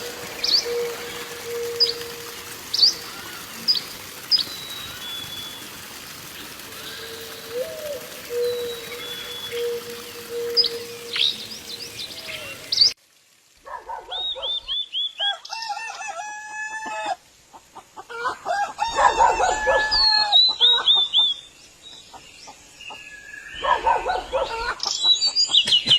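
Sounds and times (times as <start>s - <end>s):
birds chirping and calling: 0.0s - 13.0s.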